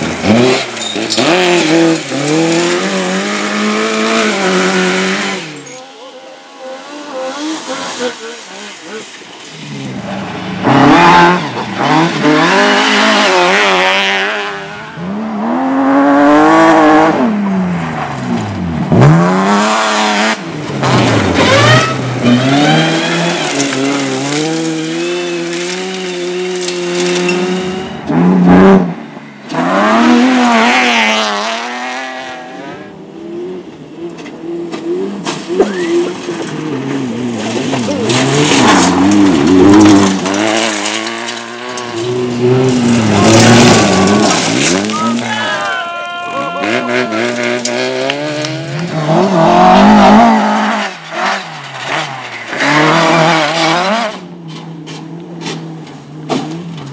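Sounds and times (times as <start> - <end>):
rally car engines revving: 0.0 - 56.9
tyre squeal: 5.4 - 9.0, 21.4 - 24.0.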